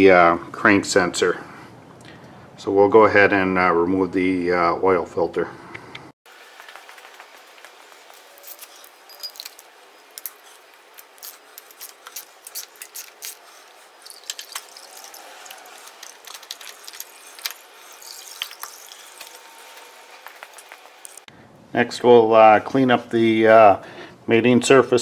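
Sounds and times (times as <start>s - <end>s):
oil dripping and running: 6.3s - 21.3s
filter and wrench clicks and scrapes: 6.6s - 21.3s.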